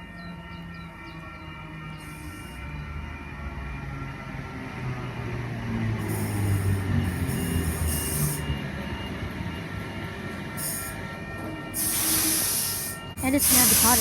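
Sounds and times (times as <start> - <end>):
electric train humming: 0.0 - 14.0
air hisses: 11.8 - 14.0.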